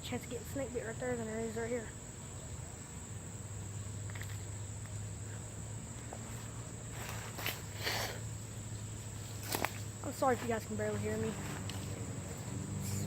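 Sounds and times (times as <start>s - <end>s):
insects droning: 0.0s - 13.0s
footsteps through brush: 6.0s - 8.0s, 8.7s - 13.0s.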